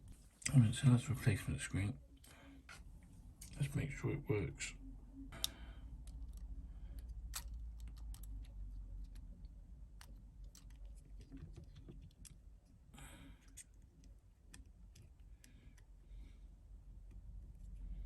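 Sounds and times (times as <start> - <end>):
low steady hum: 0.0 - 18.0
light clicks and taps of handling: 5.4 - 12.8, 13.4 - 15.9.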